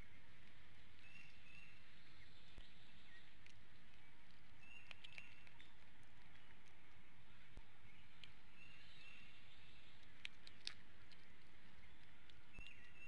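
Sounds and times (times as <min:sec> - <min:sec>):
outdoor background hiss: 0:00.0 - 0:13.0
faint clicks: 0:03.3 - 0:07.1, 0:08.2 - 0:08.4, 0:09.9 - 0:13.0.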